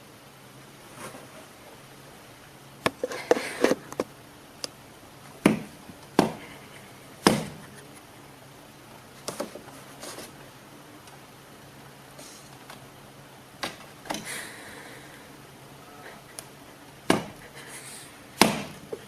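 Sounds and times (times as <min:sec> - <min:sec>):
sharp knocks and thuds: 0:05.4 - 0:06.4, 0:07.2 - 0:07.6, 0:17.1 - 0:17.4, 0:18.4 - 0:18.9.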